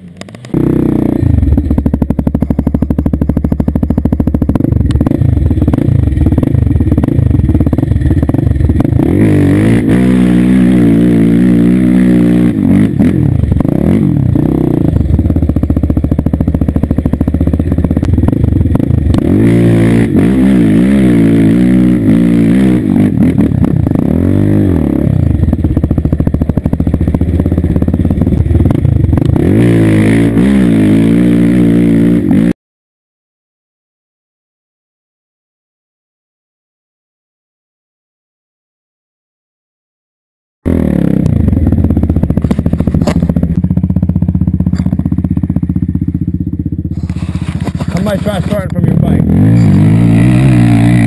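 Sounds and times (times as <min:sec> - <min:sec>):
small engine revving: 0:46.9 - 0:51.0.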